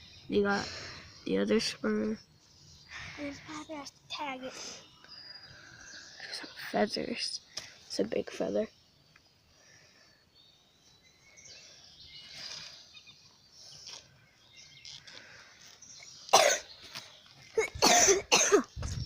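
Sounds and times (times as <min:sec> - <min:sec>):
person coughing: 0:16.3 - 0:16.7, 0:17.6 - 0:18.7.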